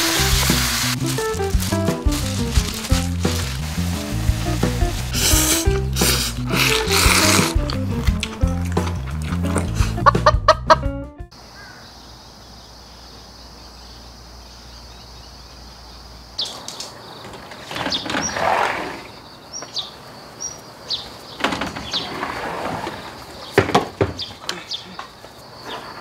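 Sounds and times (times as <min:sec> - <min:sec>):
bird chirps: 0:11.4 - 0:18.4, 0:19.1 - 0:22.1
sliding door opening: 0:17.2 - 0:19.1, 0:21.4 - 0:23.8.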